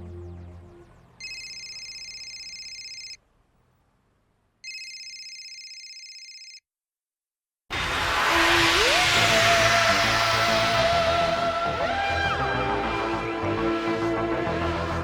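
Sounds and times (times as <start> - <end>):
telephone ringing: 1.2 - 3.2, 4.6 - 6.6.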